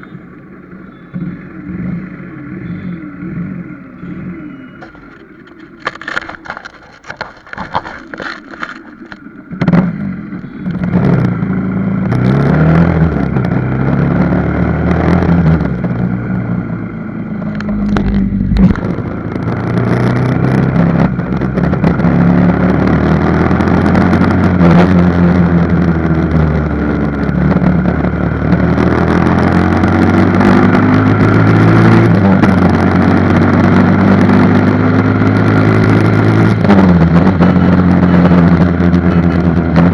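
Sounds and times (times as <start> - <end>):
motorcycle engine revving: 0.0 - 39.9
scattered clicks: 4.8 - 9.3, 17.4 - 19.6.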